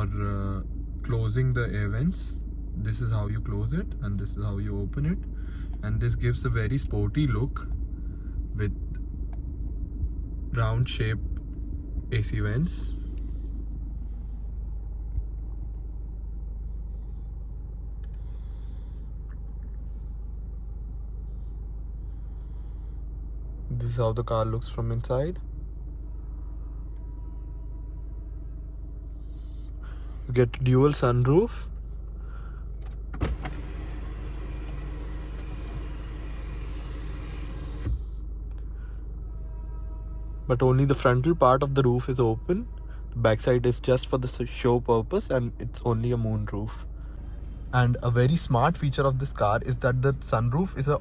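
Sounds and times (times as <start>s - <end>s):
diesel engine idling: 0.0s - 39.7s
sunroof motor running: 33.0s - 38.2s.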